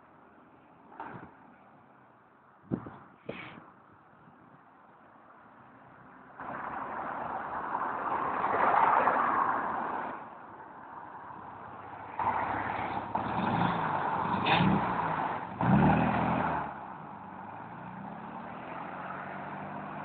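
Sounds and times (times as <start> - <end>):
car engine accelerating: 12.2 - 20.0.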